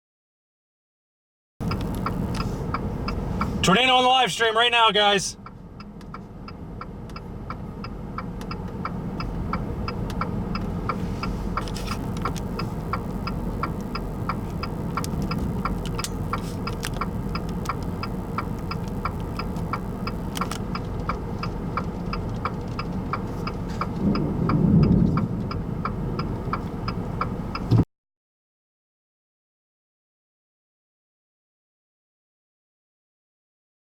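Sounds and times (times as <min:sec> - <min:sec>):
vehicle rumble: 0:01.6 - 0:27.9.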